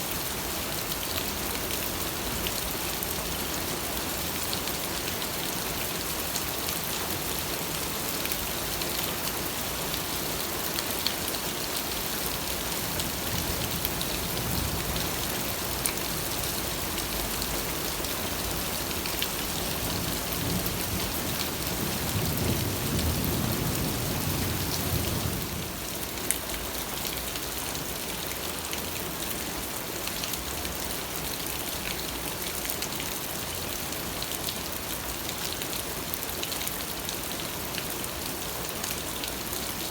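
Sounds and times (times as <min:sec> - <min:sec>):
steady rain falling: 0:00.0 - 0:39.9
low rumble of thunder: 0:20.0 - 0:25.8.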